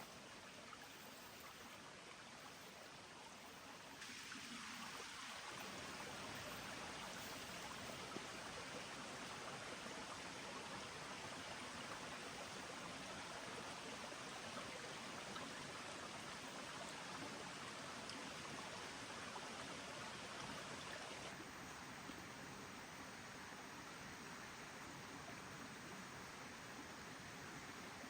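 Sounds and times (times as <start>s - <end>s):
running water rushing: 0.0s - 28.0s.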